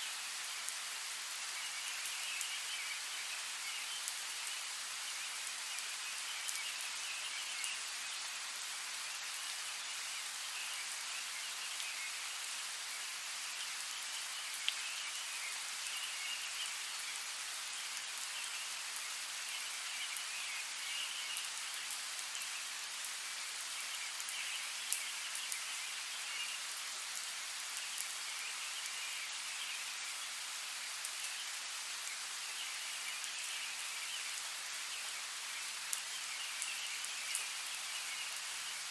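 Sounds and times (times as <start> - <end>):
steady rain falling: 0.0 - 38.9
rain drop clicks: 14.6 - 14.9.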